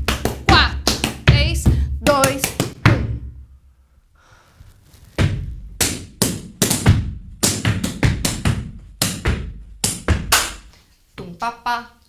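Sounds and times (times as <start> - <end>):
hands slapping rubber boots: 0.0 - 2.8, 4.9 - 11.3
boot stamps on a platform: 5.2 - 10.7
hands clapping: 9.8 - 10.8.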